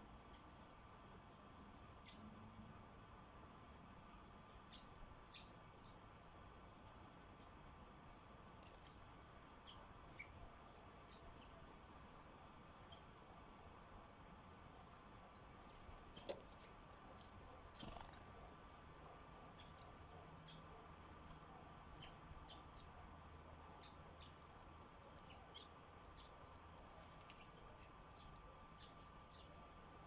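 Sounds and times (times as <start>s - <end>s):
faint steady hum: 0.0s - 30.0s
sparrows chirping: 1.8s - 2.4s, 4.2s - 6.4s, 7.2s - 7.7s, 8.5s - 13.6s, 15.2s - 30.0s.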